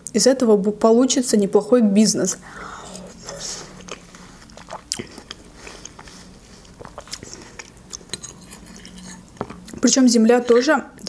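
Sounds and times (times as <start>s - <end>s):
watermelon being chewed: 2.4s - 9.9s.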